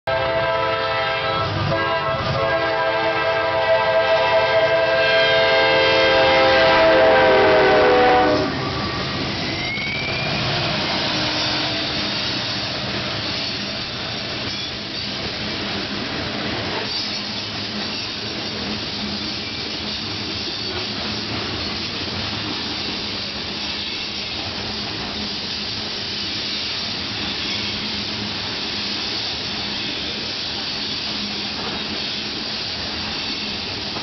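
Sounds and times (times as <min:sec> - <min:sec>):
locomotive air horn: 0:00.1 - 0:09.1, 0:10.2 - 0:12.1
freight train rumbling on rails: 0:00.1 - 0:34.0.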